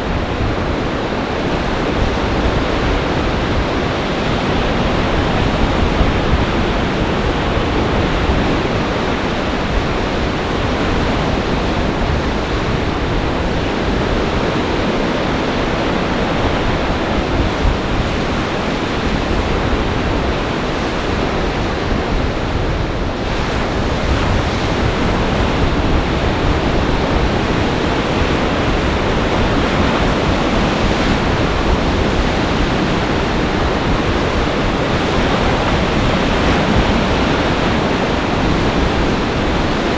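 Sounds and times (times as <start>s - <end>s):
storm surf rushing: 0.0s - 39.9s
wind buffeting microphone: 0.0s - 39.9s.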